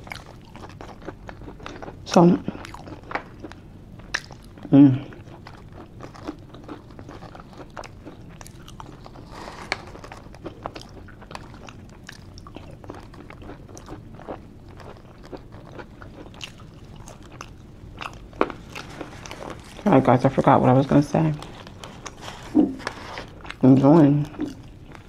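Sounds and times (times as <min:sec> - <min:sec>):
person chewing and lip smacking: 0:00.0 - 0:19.8, 0:21.5 - 0:25.0.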